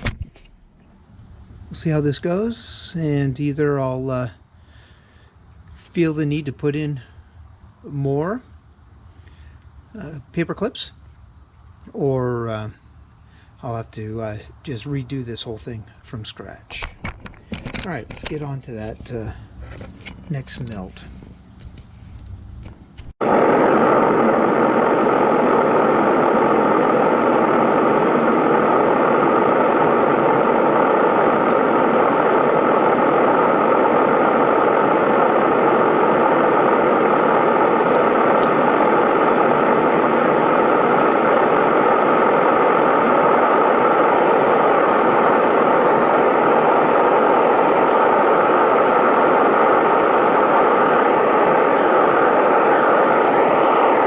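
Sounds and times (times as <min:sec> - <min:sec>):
furnace burner roaring: 0:22.2 - 0:54.0.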